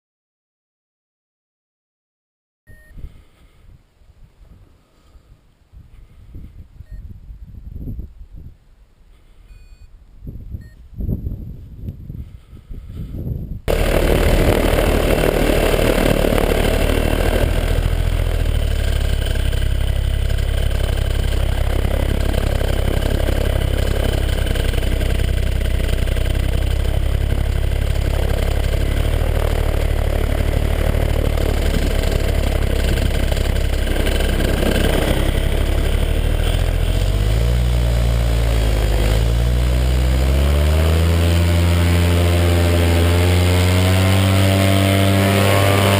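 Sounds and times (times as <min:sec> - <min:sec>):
paramotor engine and propeller: 0:13.7 - 0:45.9.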